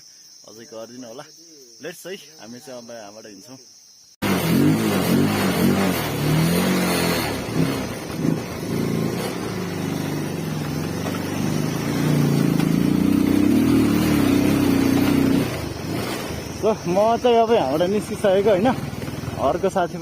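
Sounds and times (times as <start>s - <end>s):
motorcycle engine running: 4.2s - 20.0s.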